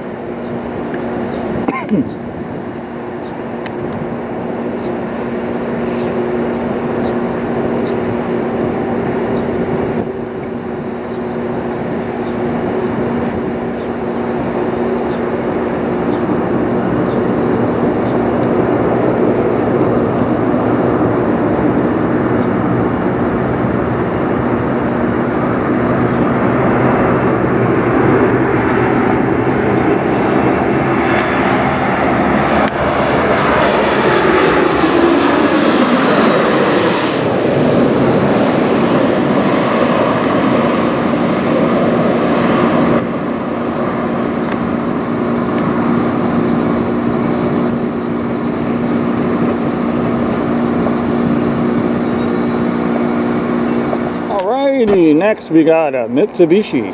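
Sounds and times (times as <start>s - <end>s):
jet airliner flying over: 0.0s - 56.9s.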